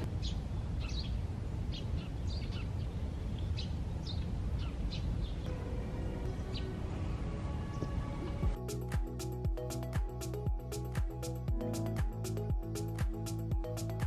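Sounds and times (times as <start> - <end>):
small birds chirping: 0.0 - 5.5.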